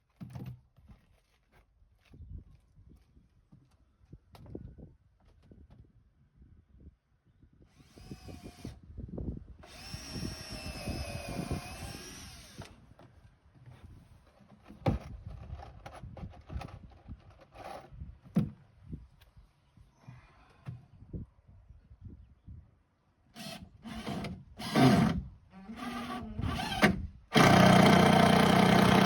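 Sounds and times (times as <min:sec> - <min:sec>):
handheld power tool running: 0:09.6 - 0:12.7, 0:25.8 - 0:29.0.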